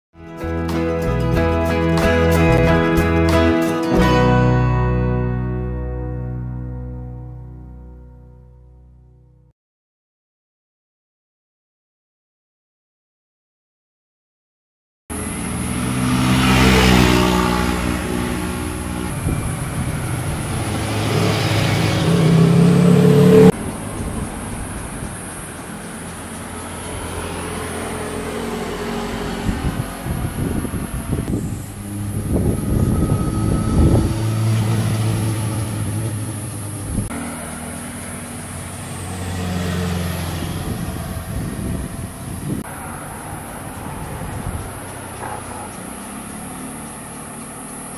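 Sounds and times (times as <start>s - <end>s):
motorcycles passing by: 15.1s - 47.9s.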